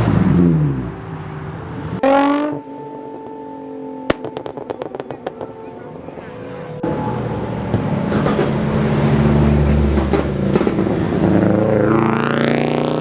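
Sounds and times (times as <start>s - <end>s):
car engine accelerating hard: 6.8s - 13.0s.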